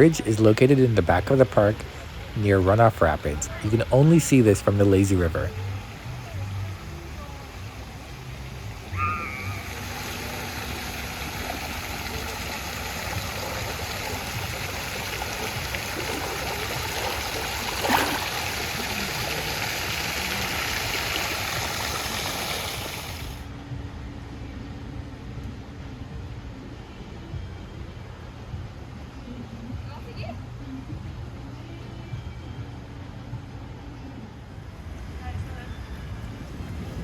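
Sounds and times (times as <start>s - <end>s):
water rushing and splashing: 0.0s - 23.5s
loud water splash: 8.9s - 23.4s.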